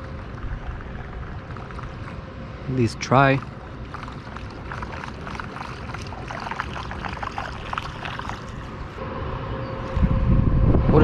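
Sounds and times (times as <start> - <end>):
faint steady hum: 0.0 - 11.0
small splashes: 3.4 - 8.8
water lapping around a kayak: 3.5 - 9.0.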